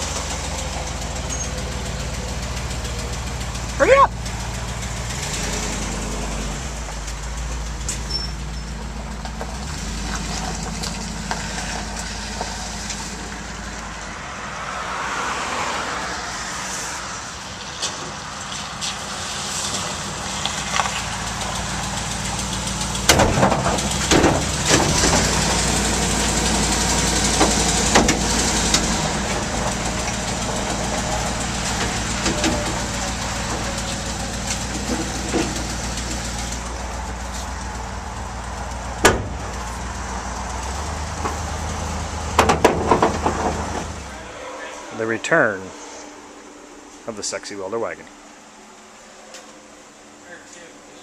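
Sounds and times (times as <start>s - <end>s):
vehicle engine idling: 0.0s - 51.0s
sharp knocks and clatter: 22.9s - 25.7s, 27.2s - 36.7s, 39.0s - 39.8s, 42.3s - 44.1s.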